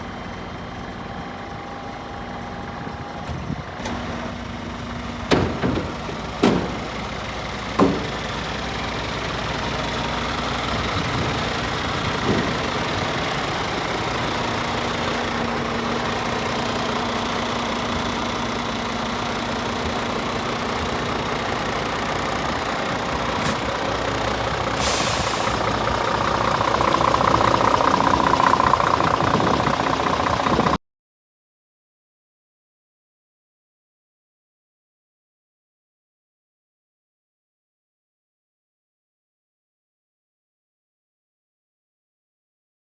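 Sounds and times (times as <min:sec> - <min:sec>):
diesel truck engine idling: 0:00.0 - 0:30.8
knocks: 0:05.2 - 0:07.2, 0:07.8 - 0:08.5, 0:25.6 - 0:30.8
short hiss: 0:24.8 - 0:25.8.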